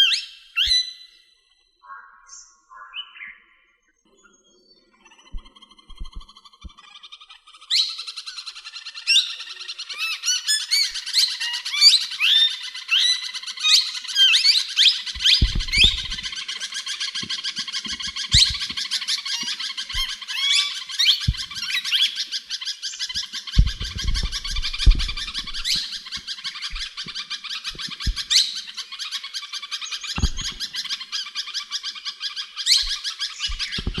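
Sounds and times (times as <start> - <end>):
birds chirping and chattering: 0.0 - 34.0
short low thumps: 15.2 - 16.3, 21.3 - 21.6, 23.6 - 25.8.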